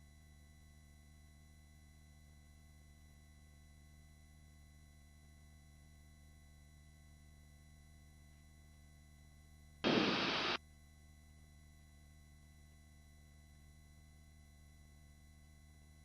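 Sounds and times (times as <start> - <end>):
burst of hiss: 9.8 - 10.6
faint electrical hum: 9.8 - 10.6.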